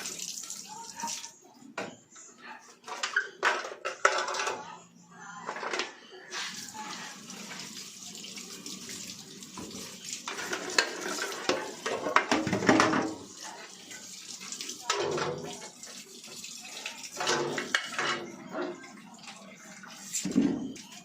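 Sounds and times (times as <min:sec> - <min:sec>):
tap water running into sink: 0:00.0 - 0:01.3, 0:06.4 - 0:21.0.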